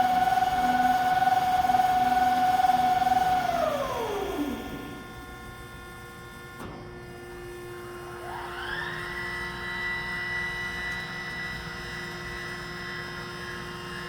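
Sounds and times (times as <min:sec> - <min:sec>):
band saw whining: 0:00.0 - 0:05.2.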